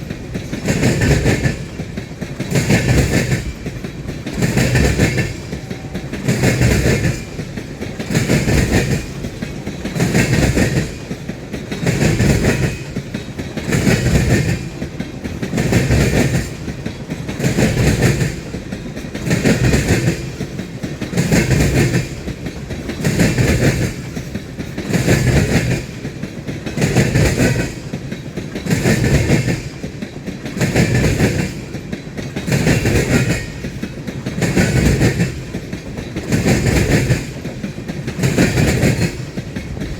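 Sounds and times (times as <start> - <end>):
train wheels clacking over rails: 0.0 - 39.9.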